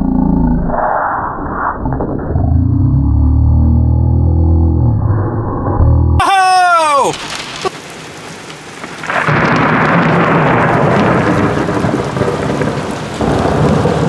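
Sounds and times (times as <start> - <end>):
steady rain: 6.2 - 14.0
thunder rumbling: 7.1 - 14.0.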